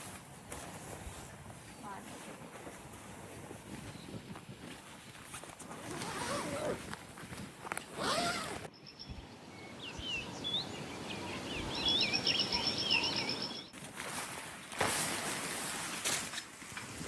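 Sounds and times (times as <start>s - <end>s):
songbird chirping and trilling: 8.7s - 13.8s.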